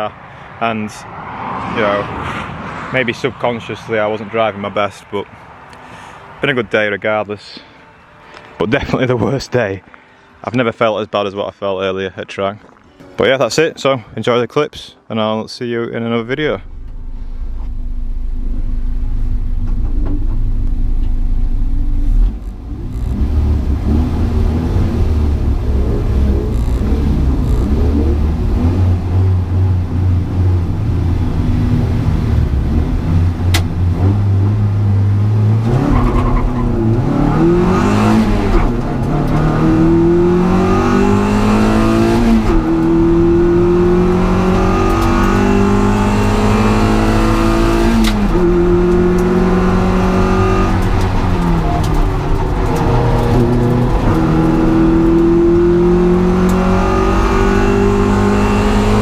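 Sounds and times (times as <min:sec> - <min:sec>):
race car engine revving: 0:16.2 - 0:59.0.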